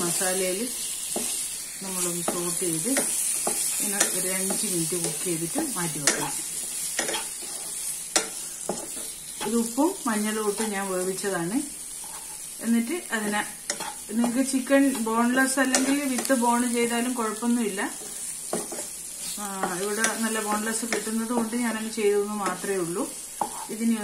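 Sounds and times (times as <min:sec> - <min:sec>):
chicken sizzling in a pan: 0:00.0 - 0:24.0
wooden spatula stirring: 0:13.7 - 0:15.1, 0:23.4 - 0:23.8.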